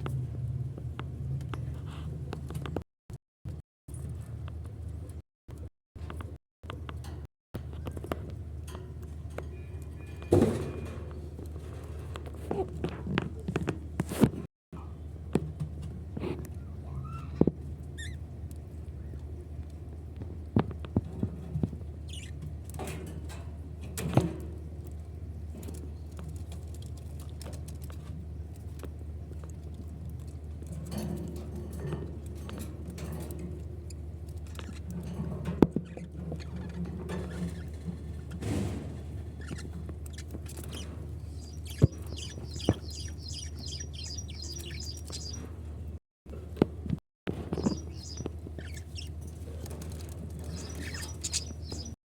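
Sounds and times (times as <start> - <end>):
knocks and scratching in cage: 0.0 - 2.8, 3.5 - 52.0
bird chirp: 22.0 - 22.4, 39.4 - 45.5, 47.4 - 49.7, 50.4 - 52.0.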